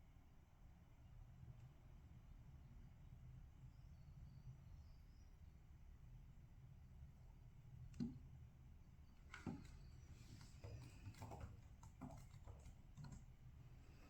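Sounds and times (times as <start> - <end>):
faint taps and clicks: 7.9 - 8.2, 9.2 - 13.6.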